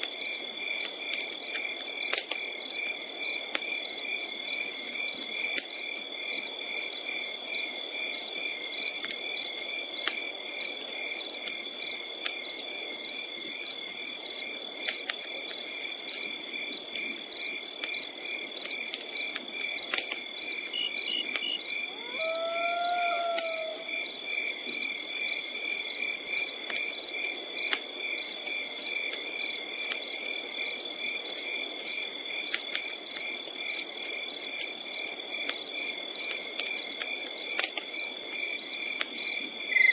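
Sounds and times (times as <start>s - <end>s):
campfire crackling and popping: 0.0s - 39.7s
crickets chirping: 0.1s - 39.9s
high insect whine: 20.4s - 24.4s, 39.6s - 39.9s.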